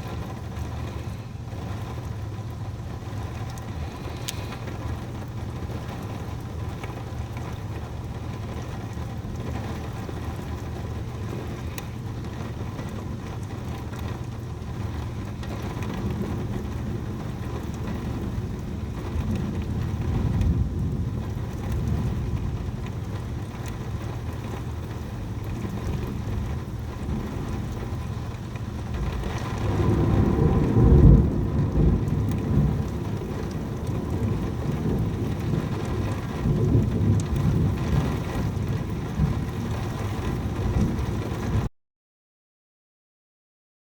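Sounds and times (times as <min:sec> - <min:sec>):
heavy rain falling: 0:00.0 - 0:41.7
thunder rumbling: 0:14.6 - 0:41.7.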